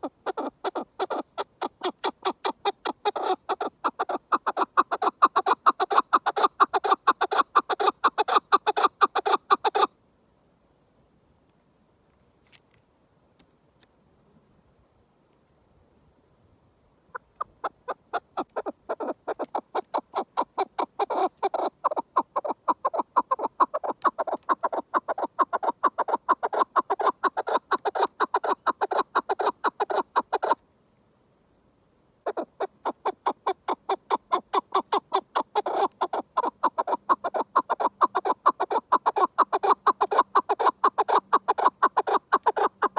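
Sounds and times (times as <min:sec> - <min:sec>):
partridge calling rapidly: 0:00.0 - 0:09.9, 0:17.1 - 0:30.6, 0:32.2 - 0:42.9.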